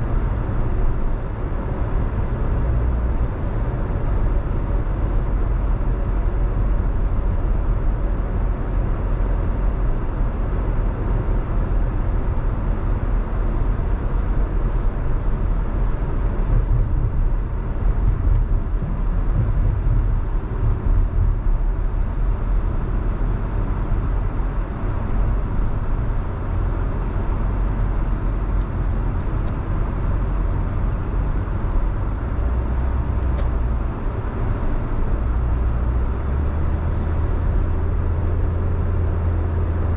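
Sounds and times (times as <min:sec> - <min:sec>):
car driving on wet road: 0:00.0 - 0:39.9.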